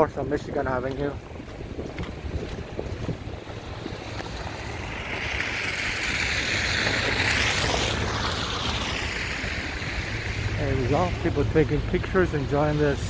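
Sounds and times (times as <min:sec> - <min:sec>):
wind rumble on microphone: 0:00.0 - 0:13.0
tyres hissing on slush: 0:04.0 - 0:13.0.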